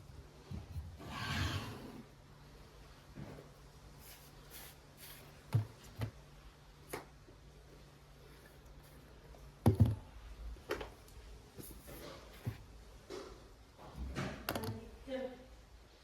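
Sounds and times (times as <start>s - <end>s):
faint steady hum: 0.0s - 16.0s
objects knocking and clattering: 9.6s - 11.0s.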